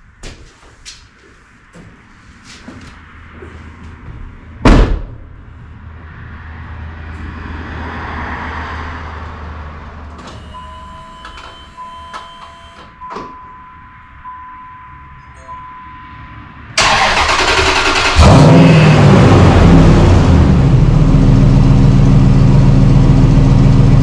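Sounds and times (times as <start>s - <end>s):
truck door slamming: 4.6s - 5.4s
electronic chime tones: 10.4s - 16.4s.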